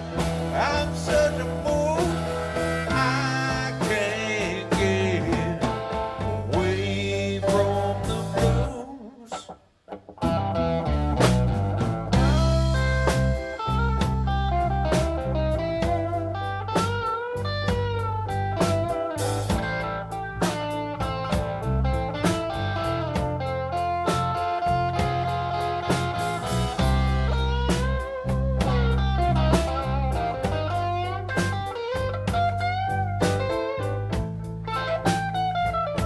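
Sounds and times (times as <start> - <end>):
blues band playing: 0.0 - 36.0
lead electric guitar bent notes: 0.0 - 36.0.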